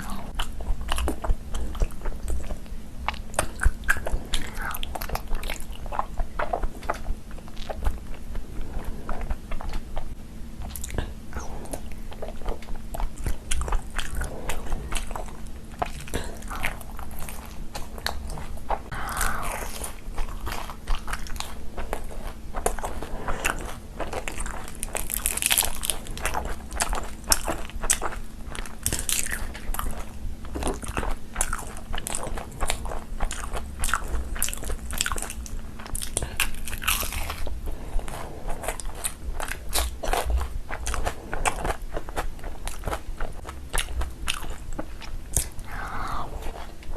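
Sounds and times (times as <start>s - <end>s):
wet chewing and smacking: 0.0s - 46.9s.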